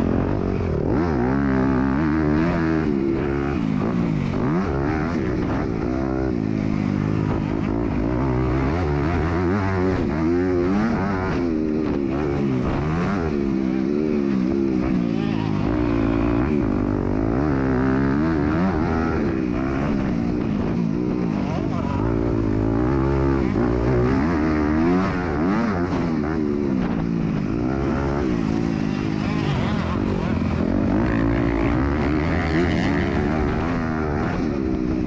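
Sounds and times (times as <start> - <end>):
motocross bike engine revving: 0.0 - 35.0.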